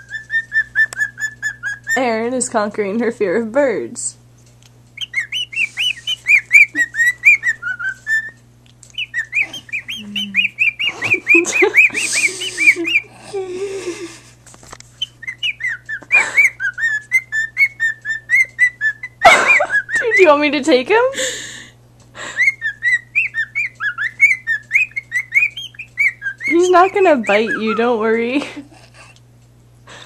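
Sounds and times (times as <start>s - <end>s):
bird chirping: 0.0s - 2.3s, 5.0s - 13.1s, 15.0s - 20.4s, 22.4s - 28.1s
steady low hum: 0.0s - 30.0s.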